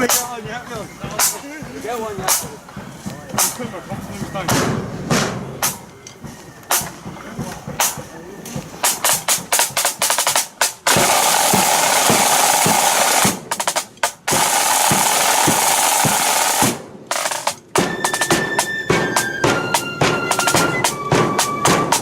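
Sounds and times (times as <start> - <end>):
bass drum beat: 0.0 - 22.0
snare drum strokes and rolls: 0.0 - 22.0
flutes playing held notes: 17.2 - 22.0.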